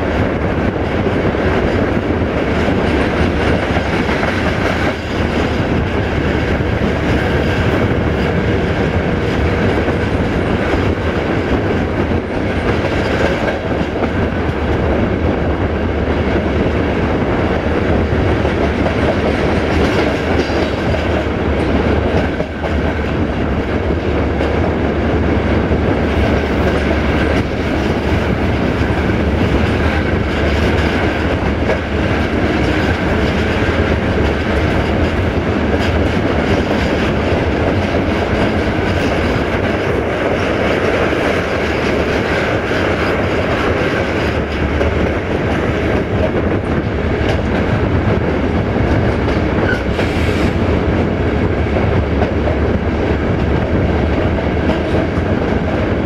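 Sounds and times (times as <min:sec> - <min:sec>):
diesel locomotive drone: 0:00.0 - 0:56.0
train wheels rumbling on rails: 0:00.0 - 0:56.0
wheels clacking over rail joints: 0:16.0 - 0:56.0.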